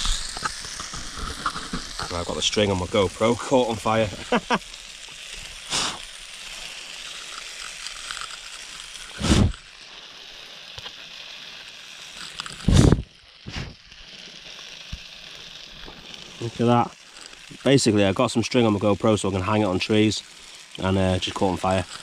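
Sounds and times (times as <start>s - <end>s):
food sizzling in pan: 0.0s - 22.0s
air puffs on microphone: 5.7s - 6.0s, 9.2s - 9.6s, 12.6s - 13.8s.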